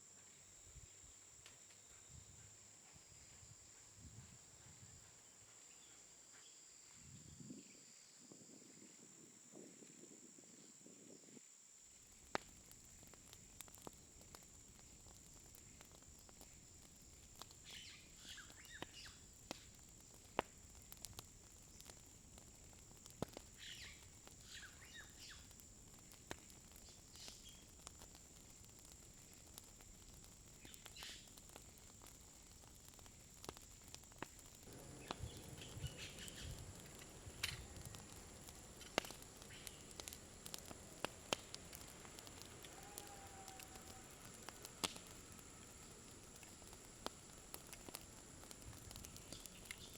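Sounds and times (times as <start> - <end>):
small sharp clicks: 32.8 - 49.9
birds chirping: 34.7 - 40.5.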